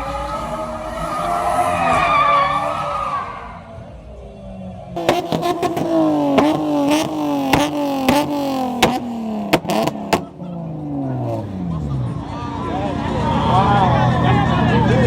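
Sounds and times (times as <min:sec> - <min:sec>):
car engine running: 0:03.4 - 0:15.0
sharp engine pops: 0:05.0 - 0:06.6, 0:07.5 - 0:10.3.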